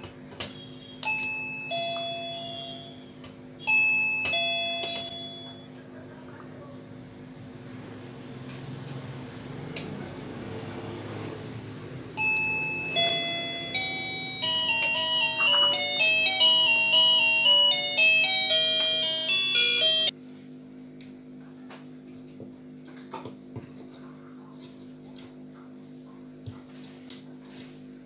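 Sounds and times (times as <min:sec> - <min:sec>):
electronic doorbell chime melody: 0:01.0 - 0:05.8, 0:12.2 - 0:20.2.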